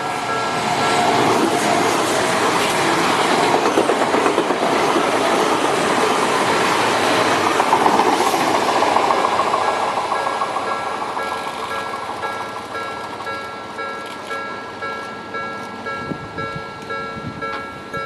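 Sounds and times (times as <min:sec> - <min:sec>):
level crossing warning bell: 0:00.0 - 0:01.2, 0:08.7 - 0:18.0
electric train passing: 0:00.0 - 0:18.0
wheels clattering over rail joints: 0:00.2 - 0:14.4.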